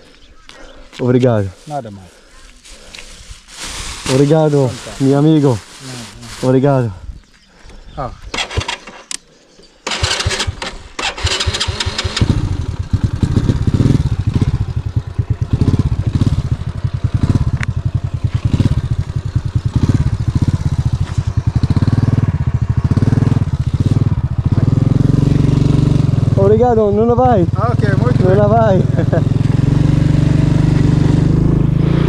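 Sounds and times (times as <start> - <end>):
motorbike starter cranking: 8.3 - 9.2, 9.8 - 12.5
motorbike engine running: 11.2 - 32.0.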